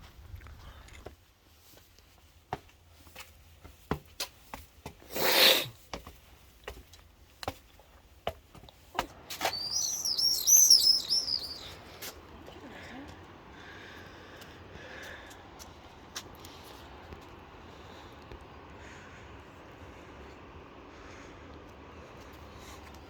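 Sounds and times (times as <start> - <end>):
songbird chirping: 9.1 - 13.2.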